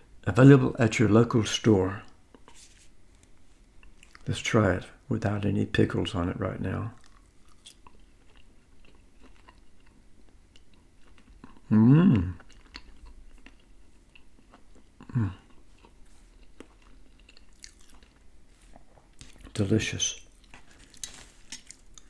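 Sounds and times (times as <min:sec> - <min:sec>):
person chewing: 0:03.2 - 0:04.3, 0:06.9 - 0:19.6, 0:20.2 - 0:22.0
person humming mm: 0:11.7 - 0:12.4, 0:15.0 - 0:15.5.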